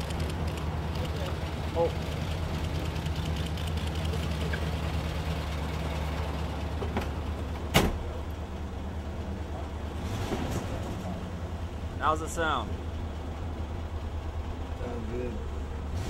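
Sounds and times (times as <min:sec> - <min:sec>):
car engine idling: 0:00.0 - 0:10.0, 0:11.0 - 0:16.0
car door shutting: 0:06.8 - 0:08.2.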